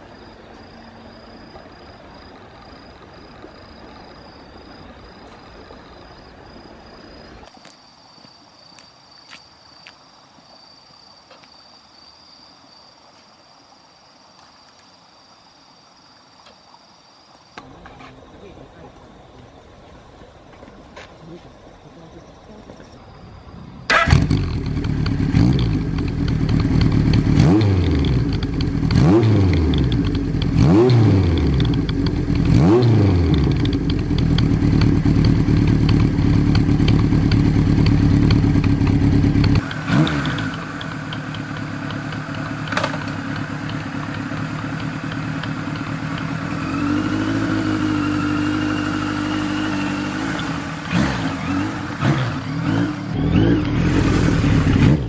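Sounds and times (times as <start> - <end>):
motorcycle engine idling and revving: 23.9 - 55.0.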